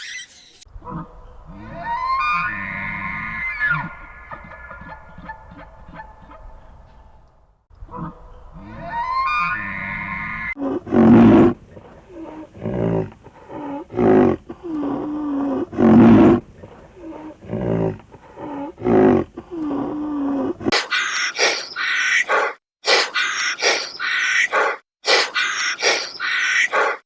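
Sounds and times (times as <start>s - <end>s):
large animal roaring: 0.7s - 6.8s, 7.8s - 20.7s
low drawn-out animal sounds: 0.7s - 20.7s.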